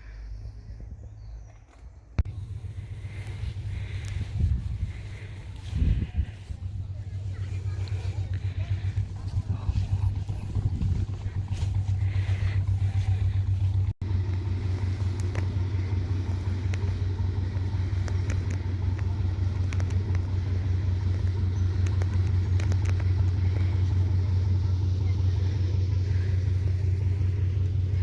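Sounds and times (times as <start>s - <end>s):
steady low rumble: 0.0s - 28.0s
faint clicks: 15.0s - 15.8s, 16.4s - 24.0s.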